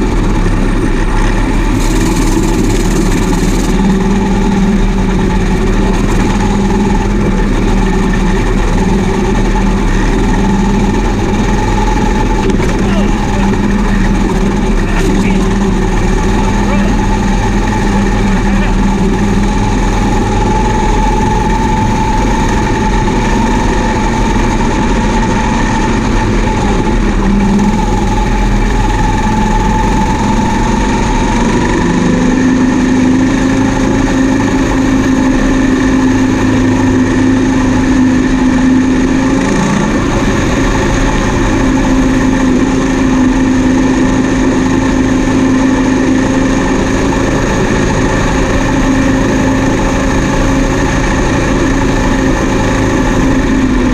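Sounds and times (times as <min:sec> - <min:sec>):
combine harvester running: 0:00.0 - 0:53.9
machine hums and whines: 0:00.0 - 0:53.9.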